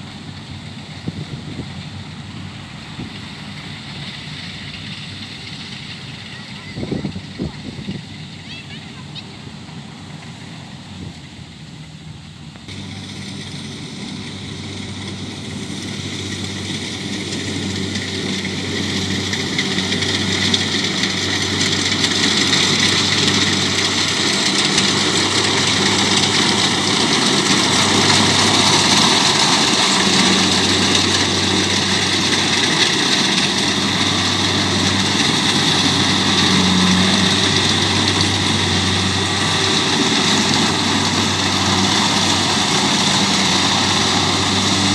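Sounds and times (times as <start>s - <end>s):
combine harvester engine drone: 0.0s - 44.9s
high machine whine: 12.7s - 44.9s.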